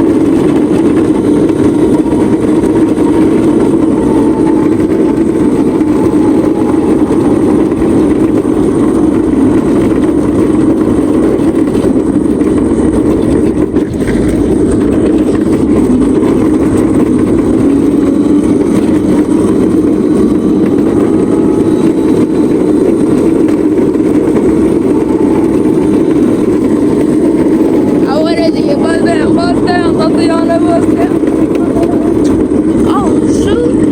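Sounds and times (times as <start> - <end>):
small vehicle engine running: 0.0 - 33.9.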